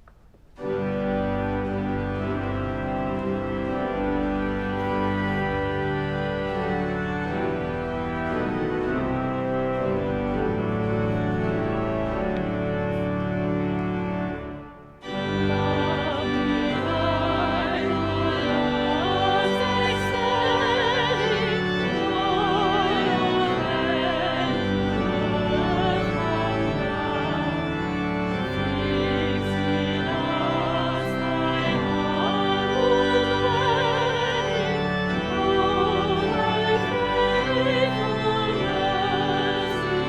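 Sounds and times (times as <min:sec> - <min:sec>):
church organ chords: 0:00.6 - 0:40.0
people singing with vibrato: 0:15.3 - 0:27.7, 0:28.3 - 0:40.0.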